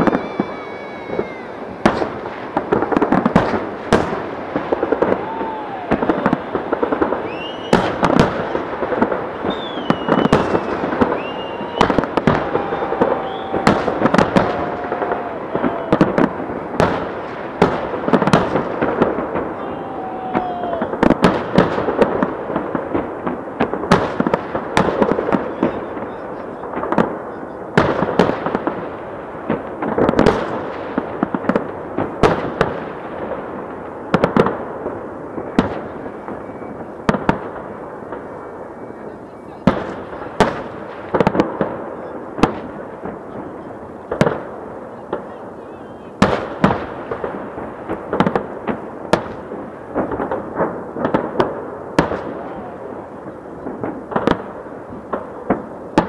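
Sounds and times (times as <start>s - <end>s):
firework shells bursting: 0.0s - 27.2s
firework crackling: 0.0s - 56.0s.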